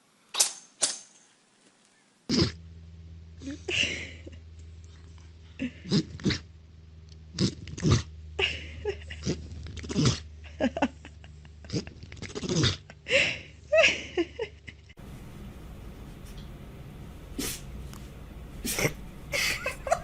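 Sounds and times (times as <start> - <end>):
dog sneezing and snorting: 17.3 - 17.7, 18.6 - 19.0.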